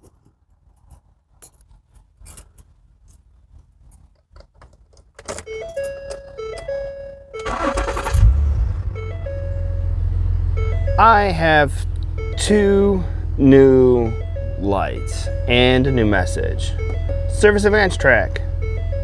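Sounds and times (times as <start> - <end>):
car engine starting and idling: 5.5 - 19.0
tinkling melody tones: 10.6 - 19.0.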